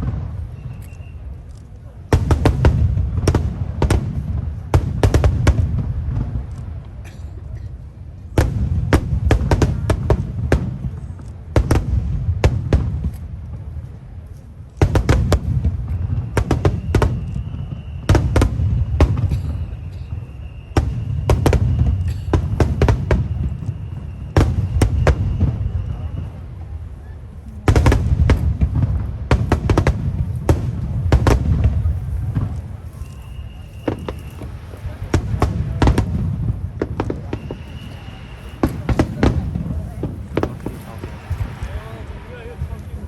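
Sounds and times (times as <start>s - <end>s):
firework crackling: 0.0s - 43.0s
firework shell booms: 14.8s - 26.5s, 27.6s - 42.0s.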